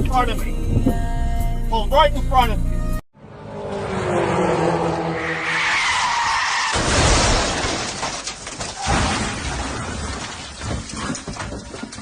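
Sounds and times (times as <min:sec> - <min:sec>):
car tyres squealing: 0:04.8 - 0:06.8
car crash: 0:05.1 - 0:12.0
crunching metal: 0:05.8 - 0:12.0.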